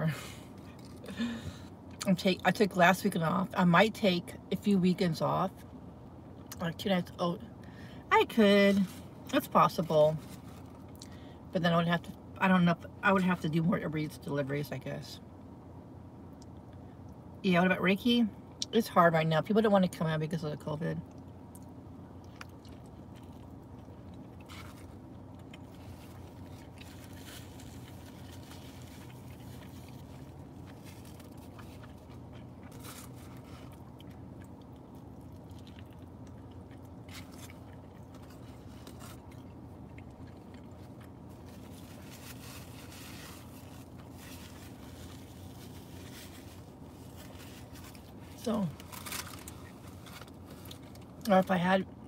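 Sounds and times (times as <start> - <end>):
steady low hum: 0.0 - 52.0
chewing and biting food: 21.1 - 48.2.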